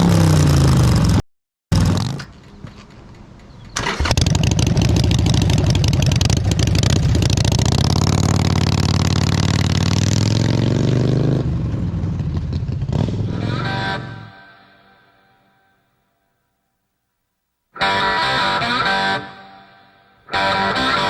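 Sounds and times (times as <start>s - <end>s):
motorcycle engine revving: 0.0s - 2.7s, 3.7s - 14.4s.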